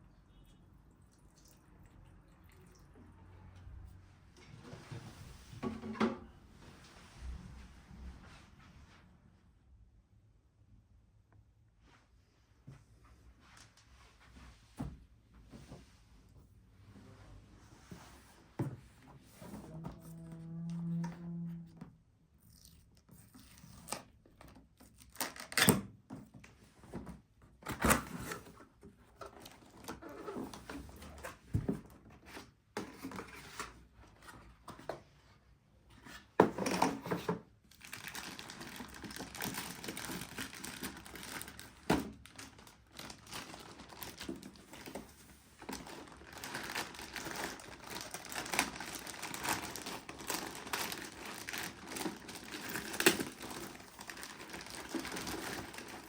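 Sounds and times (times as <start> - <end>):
packaging crinkling and tearing: 24.8 - 25.7, 37.7 - 56.0.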